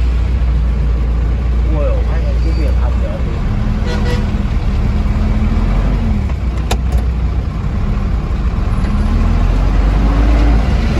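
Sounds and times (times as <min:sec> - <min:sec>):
train engine hum: 0:00.0 - 0:09.1
train rumbling: 0:00.0 - 0:10.9.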